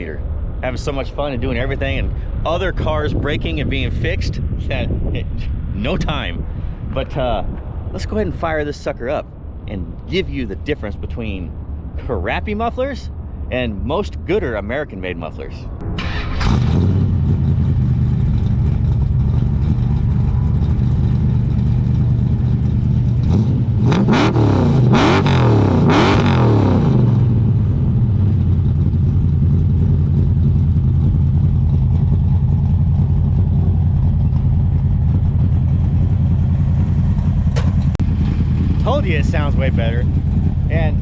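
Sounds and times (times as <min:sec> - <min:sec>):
car engine idling and revving: 0:15.7 - 0:41.0.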